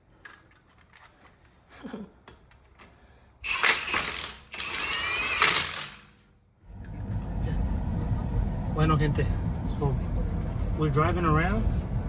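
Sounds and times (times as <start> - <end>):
clamp ratcheting: 3.4 - 6.1.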